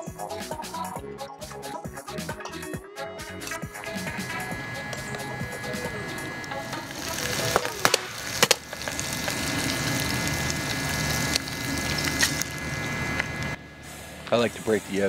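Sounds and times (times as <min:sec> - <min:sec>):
egg cracking: 0:03.4 - 0:13.6
sausages sizzling: 0:03.4 - 0:13.6.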